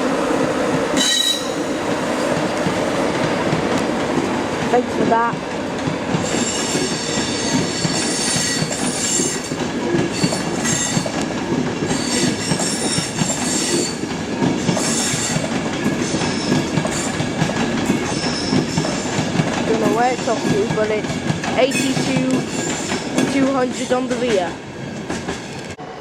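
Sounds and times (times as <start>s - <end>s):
train wheels rumbling on rail: 0.0s - 26.0s
wheel squeals: 18.0s - 19.2s.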